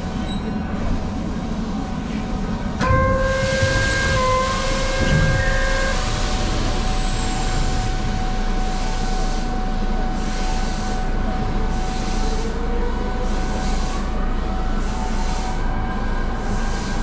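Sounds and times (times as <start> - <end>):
pulsing hiss: 3.4 - 9.6.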